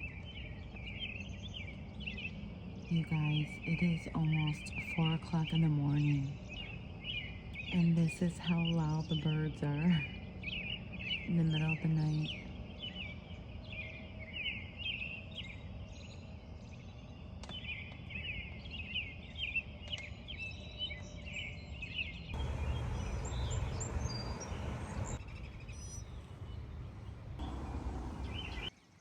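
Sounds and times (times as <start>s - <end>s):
birds chirping: 0.0s - 29.0s
low rumble: 22.4s - 28.7s.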